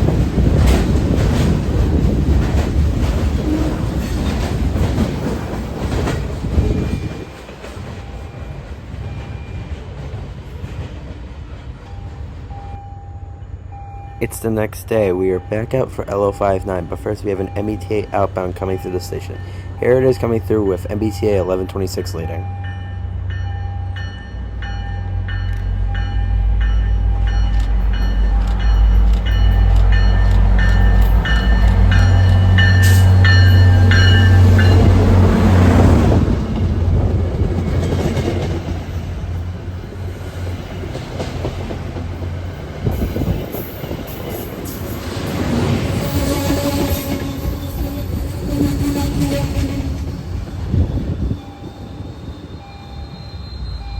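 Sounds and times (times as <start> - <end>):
freight train rumbling past: 0.0 - 53.9
warning bell dinging: 11.9 - 35.1.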